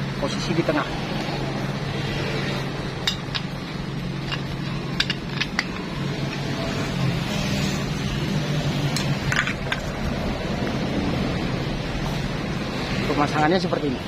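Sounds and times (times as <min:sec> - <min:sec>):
steady low hum: 0:00.0 - 0:13.0
small metal parts clinking: 0:03.0 - 0:06.6, 0:08.9 - 0:10.0.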